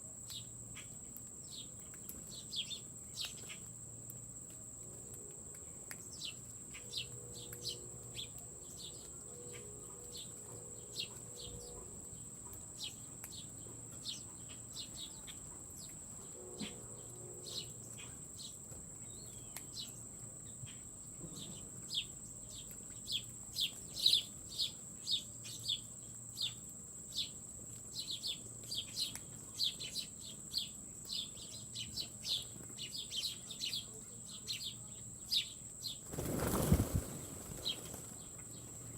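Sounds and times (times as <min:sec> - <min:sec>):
small birds chirping: 0:00.2 - 0:38.9.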